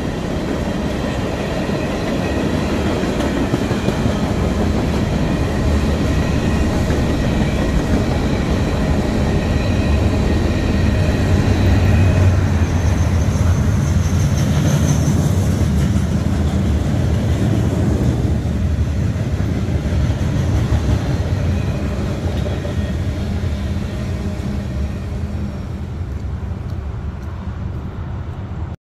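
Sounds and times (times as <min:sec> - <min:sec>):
freight train wheels rumbling on rail: 0:00.0 - 0:28.7.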